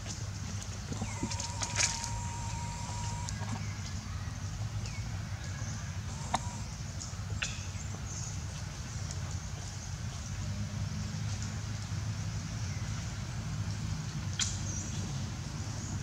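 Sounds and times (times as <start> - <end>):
steady low hum: 0.0 - 3.9, 5.7 - 8.9.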